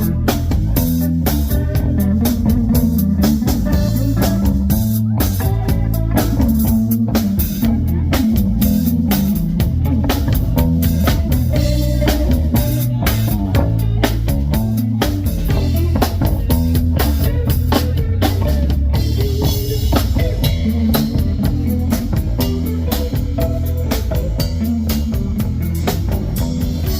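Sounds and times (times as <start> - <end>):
bass guitar: 0.0 - 26.9
blues band playing: 0.0 - 26.9
drum kit beat: 0.0 - 26.9
guitar: 0.0 - 26.9.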